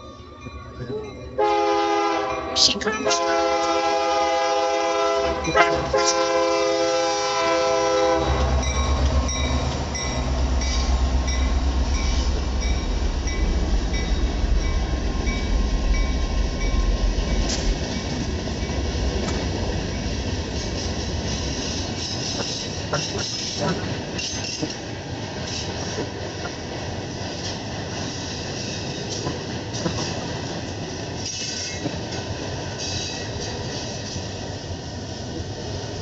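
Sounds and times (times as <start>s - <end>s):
train rumbling past: 0.0s - 36.0s
locomotive horn blast: 1.4s - 8.7s.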